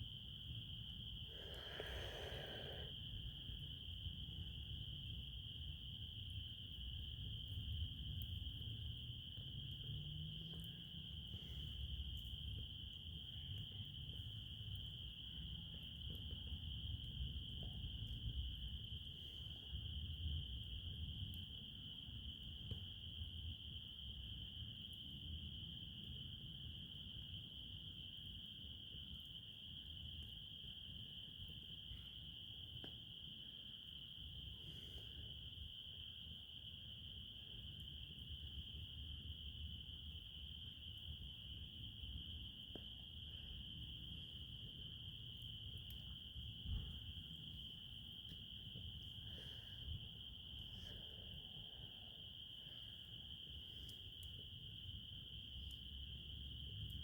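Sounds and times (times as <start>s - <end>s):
crickets trilling: 0.0s - 57.0s
faint ticks: 53.7s - 54.5s, 55.5s - 57.0s.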